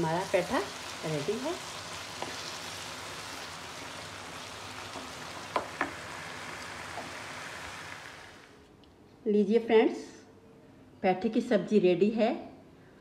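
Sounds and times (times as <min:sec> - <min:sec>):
food sizzling in a pan: 0:00.0 - 0:08.6
wooden spatula knocking on pan: 0:05.0 - 0:06.1.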